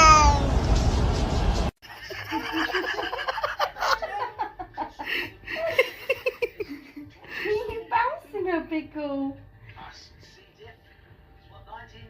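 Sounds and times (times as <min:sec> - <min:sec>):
people laughing and giggling: 0:01.8 - 0:07.8.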